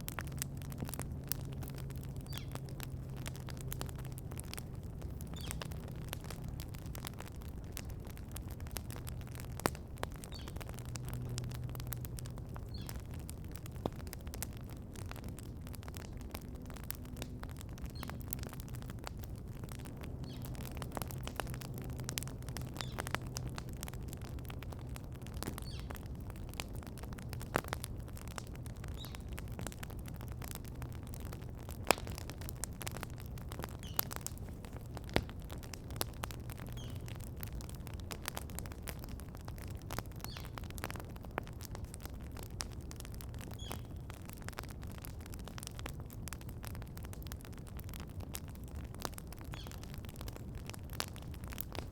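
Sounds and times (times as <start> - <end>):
campfire crackling and popping: 0.0 - 51.9
birds chirping faintly: 0.6 - 6.4, 10.0 - 13.6, 19.6 - 23.2, 25.4 - 26.1, 28.6 - 29.8, 33.6 - 35.6, 36.5 - 37.2, 40.2 - 40.9, 43.4 - 44.1.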